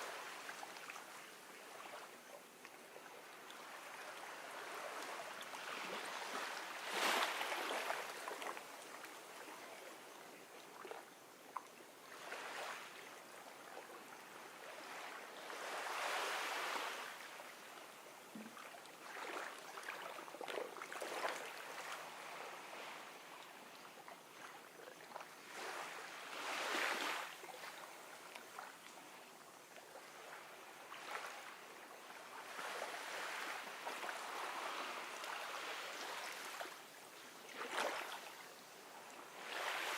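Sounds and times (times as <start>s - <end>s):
ocean waves washing onto shore: 3.2s - 10.1s, 14.0s - 18.3s, 25.2s - 29.2s, 30.0s - 39.9s.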